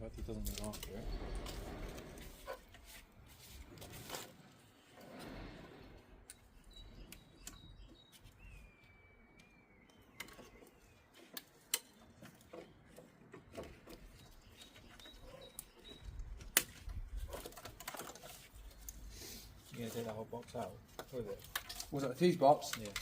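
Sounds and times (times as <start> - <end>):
faint high chirp: 6.3 - 11.3, 14.1 - 16.3
clicks of plastic clips: 22.6 - 23.0.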